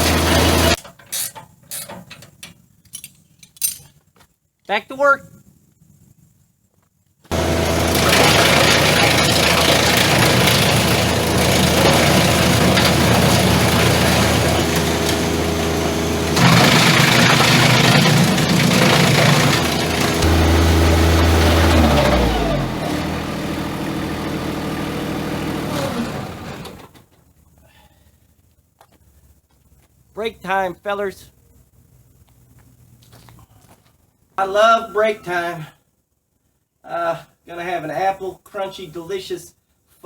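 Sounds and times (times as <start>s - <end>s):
tractor engine running wood chipper: 0.0s - 0.8s, 7.3s - 27.1s.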